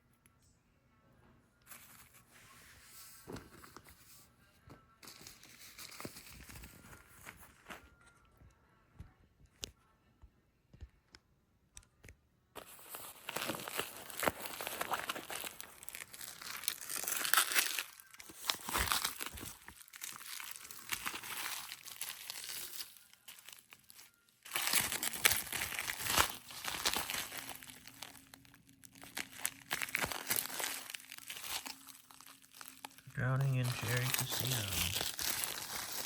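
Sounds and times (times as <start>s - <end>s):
packaging crinkling and tearing: 5.0s - 7.8s, 12.6s - 36.0s.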